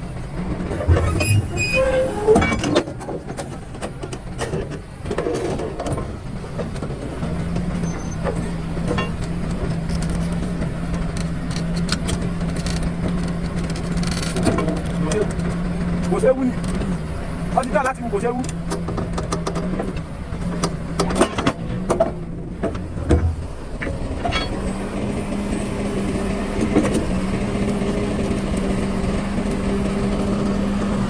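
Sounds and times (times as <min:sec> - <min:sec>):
excavator engine running: 0:00.0 - 0:31.0
metal clanks and squeaks: 0:00.6 - 0:06.8, 0:07.6 - 0:15.4, 0:17.6 - 0:24.8.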